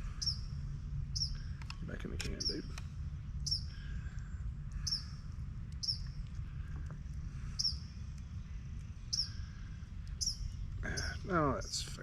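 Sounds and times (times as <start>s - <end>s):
steady low rumble: 0.0s - 12.0s
bird chirping: 0.1s - 0.5s, 1.1s - 1.6s, 2.2s - 2.7s, 3.3s - 4.0s, 4.7s - 6.2s, 7.4s - 11.9s.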